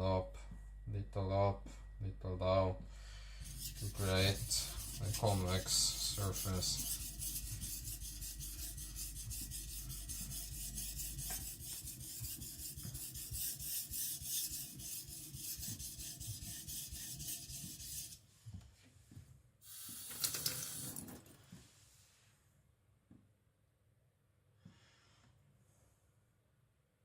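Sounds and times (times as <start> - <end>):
blade scraping on whetstone: 3.4 - 18.2.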